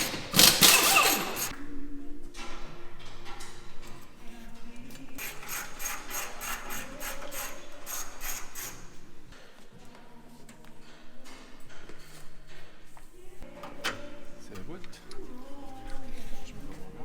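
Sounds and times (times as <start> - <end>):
ratchet wrench clicking: 0.0 - 1.5, 5.2 - 9.0.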